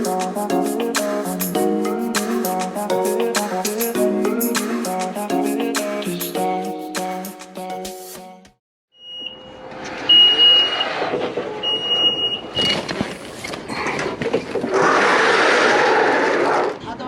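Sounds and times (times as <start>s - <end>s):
background music: 0.0s - 8.6s
vehicle noise: 9.3s - 13.7s
high electronic beeps: 11.6s - 12.8s.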